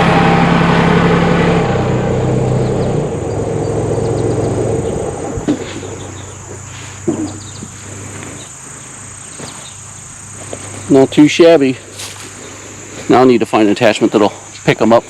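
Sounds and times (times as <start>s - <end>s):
crickets droning: 0.0s - 15.0s
tractor diesel engine running: 0.0s - 15.0s
dull knocks: 5.3s - 7.9s.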